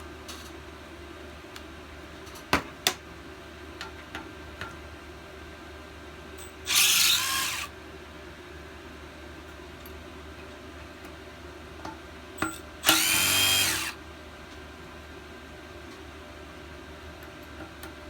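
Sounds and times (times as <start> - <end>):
power driver whirring: 6.6 - 7.7, 12.8 - 14.0.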